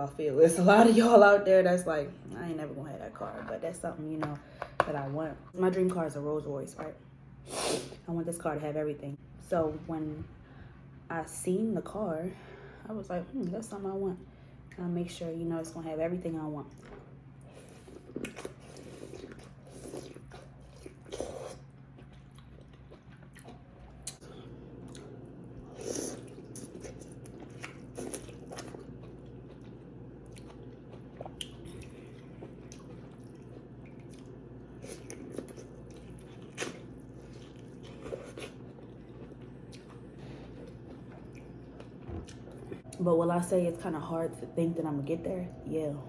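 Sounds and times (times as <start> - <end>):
steady low hum: 0.0 - 46.0
person chewing food: 16.7 - 43.0.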